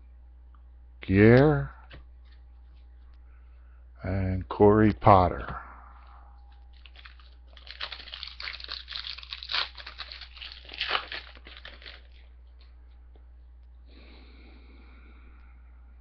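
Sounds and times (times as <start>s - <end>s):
foil wrapper crinkling and tearing: 6.7s - 12.4s.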